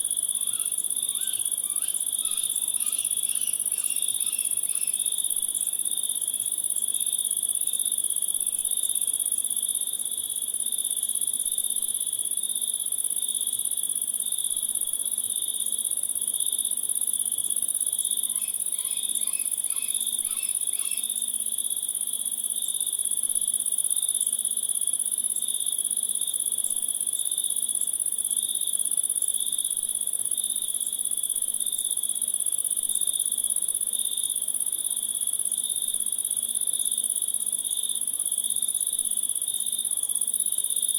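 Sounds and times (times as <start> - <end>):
lower pulsing cricket trill: 0.0 - 7.9, 17.2 - 22.4
high-pitched cricket trill: 0.0 - 8.8, 16.5 - 40.9
quick cricket chirps: 0.0 - 9.0, 15.3 - 40.9.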